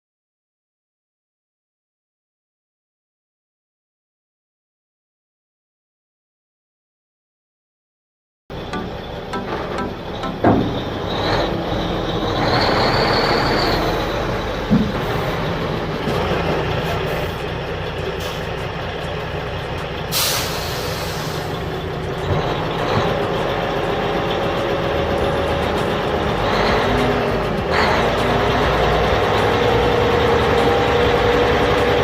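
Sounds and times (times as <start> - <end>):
truck engine running: 8.5 - 32.0
air brake hiss: 20.1 - 21.6.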